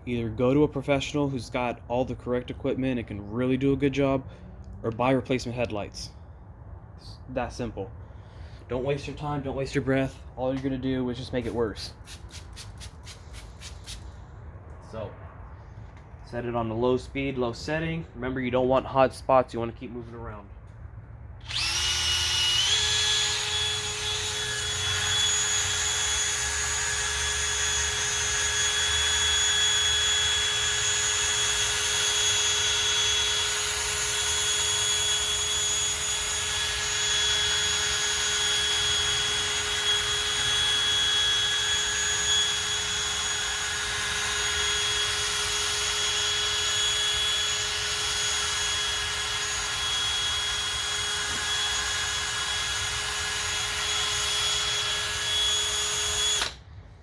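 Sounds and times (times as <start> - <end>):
electric drill whining: 21.4 - 56.6.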